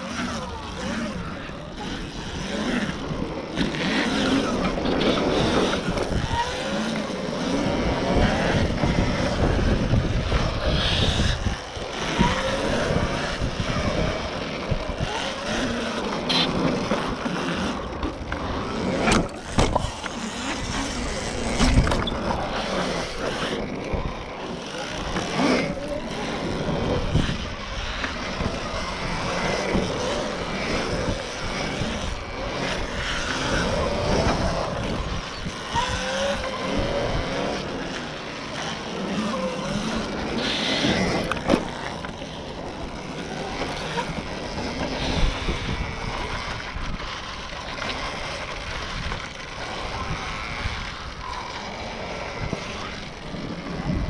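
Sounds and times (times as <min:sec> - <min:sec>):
electric motor whine: 0:00.0 - 0:54.0
tyre noise: 0:00.0 - 0:54.0
wind noise: 0:00.5 - 0:37.9, 0:39.5 - 0:54.0.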